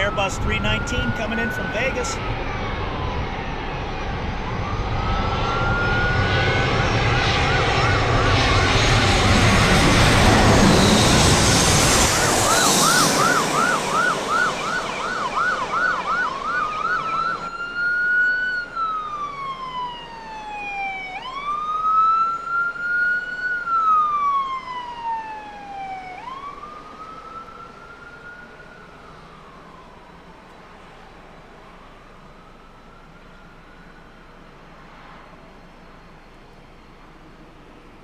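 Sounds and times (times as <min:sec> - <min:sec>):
jet airliner engine noise: 0:00.0 - 0:17.7
emergency vehicle siren: 0:00.0 - 0:38.0.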